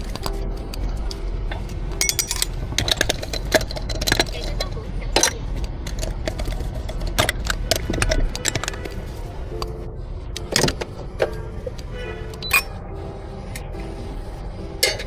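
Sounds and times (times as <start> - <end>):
steady low hum: 0.0 - 15.0
cups and metal tools clinking: 2.0 - 6.2, 12.4 - 12.7.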